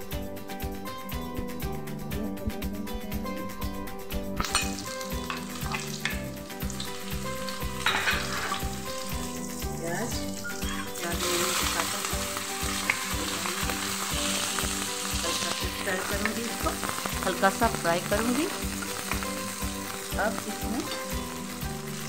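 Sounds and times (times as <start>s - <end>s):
background music with beat: 0.0s - 22.0s
hot oil sizzling: 4.4s - 22.0s.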